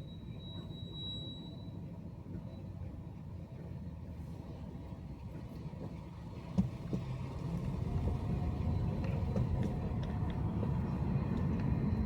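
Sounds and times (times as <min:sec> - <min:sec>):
car road and engine rumble: 0:03.8 - 0:12.0.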